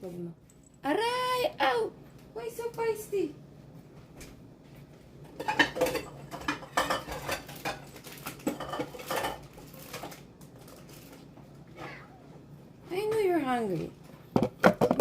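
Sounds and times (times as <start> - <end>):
cutlery clinking against dishes: 5.3 - 9.4.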